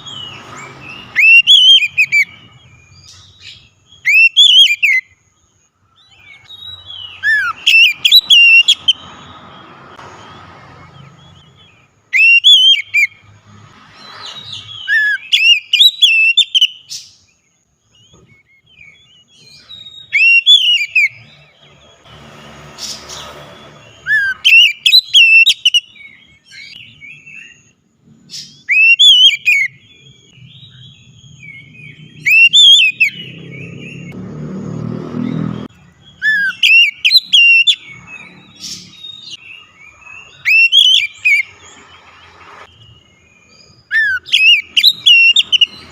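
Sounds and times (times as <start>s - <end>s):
bird singing whistled phrases: 0.0s - 5.2s, 6.1s - 9.4s, 11.0s - 13.2s, 14.3s - 17.3s, 18.0s - 21.4s, 23.8s - 27.7s, 28.4s - 34.1s, 36.1s - 41.6s, 43.4s - 45.9s.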